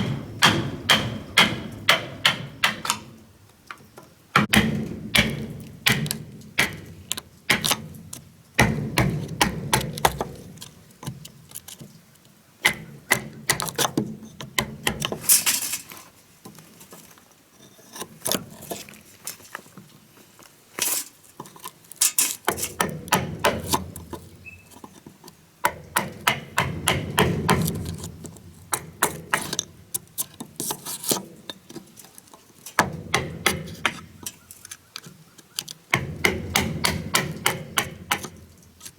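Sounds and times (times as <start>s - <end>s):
tools knocking on wood: 0.0s - 3.1s, 4.4s - 6.9s, 8.6s - 10.4s, 12.6s - 15.2s, 22.4s - 24.4s, 25.6s - 28.0s, 32.8s - 34.4s, 35.9s - 38.5s.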